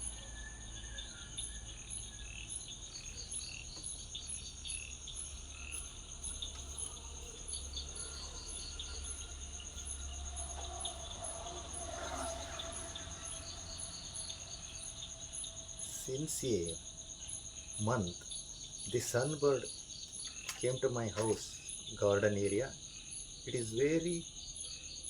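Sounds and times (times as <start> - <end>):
crickets trilling: 0.0 - 25.0
higher cricket chirp: 0.0 - 25.0.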